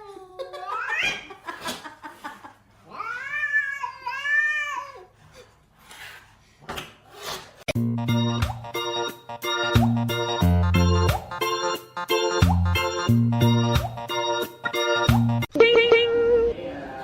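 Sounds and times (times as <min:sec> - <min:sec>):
cat yowling: 0:02.9 - 0:05.1.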